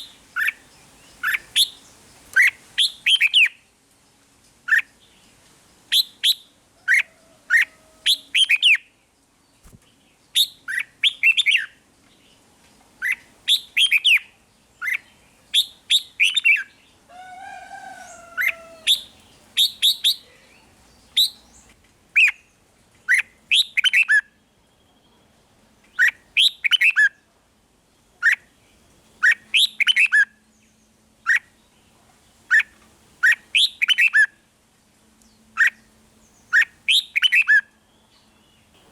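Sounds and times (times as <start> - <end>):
bird singing warbled phrases: 0.0 - 3.7, 5.8 - 12.4, 13.0 - 27.3, 28.2 - 31.8, 32.4 - 34.4, 35.2 - 38.9
bird lower call: 15.6 - 21.6.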